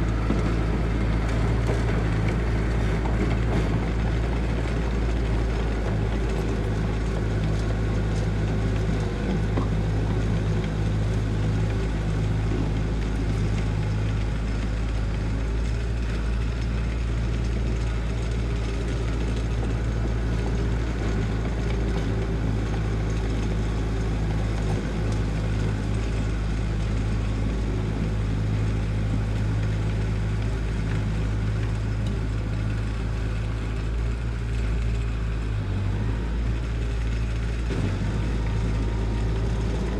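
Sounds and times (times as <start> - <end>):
heavy machinery diesel engine: 0.0 - 39.9.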